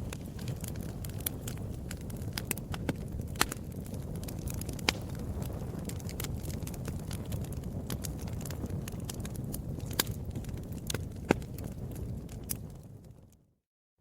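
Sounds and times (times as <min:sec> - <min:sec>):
fire pops and snaps: 0:00.0 - 0:13.5
wood fire crackling: 0:00.0 - 0:13.5.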